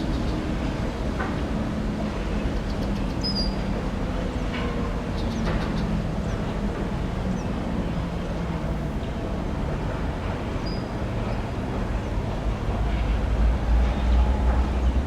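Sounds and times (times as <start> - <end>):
diesel locomotive engine: 0.0 - 15.0
freight train rumbling by: 0.0 - 15.0
railcar wheels rolling: 0.0 - 15.0.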